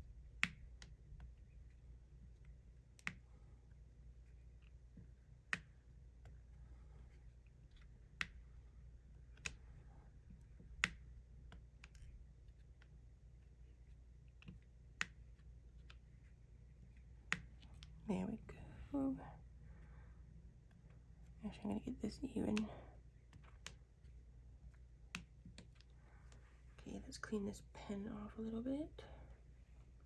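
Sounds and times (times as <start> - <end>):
faint low hum: 0.0 - 30.0.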